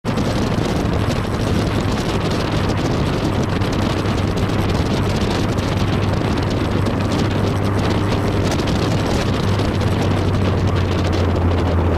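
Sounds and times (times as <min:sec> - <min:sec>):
sports car engine running hard: 0:00.0 - 0:11.9
wind buffeting microphone: 0:00.0 - 0:11.9.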